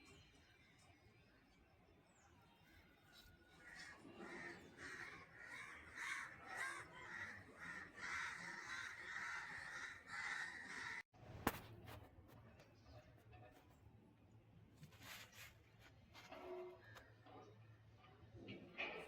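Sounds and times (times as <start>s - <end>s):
crows cawing: 3.5s - 11.0s.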